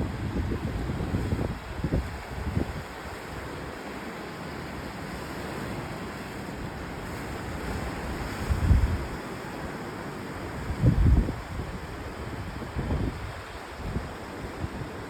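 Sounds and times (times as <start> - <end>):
wind buffeting microphone: 0.0 - 3.0, 8.0 - 9.2, 10.6 - 14.9
ocean surf washing ashore: 0.0 - 15.0.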